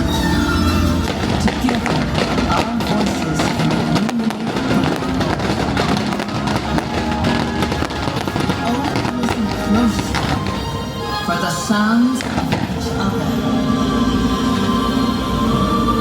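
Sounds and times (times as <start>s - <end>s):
firework bangs: 0.0s - 10.9s
music from loudspeakers: 0.0s - 16.0s.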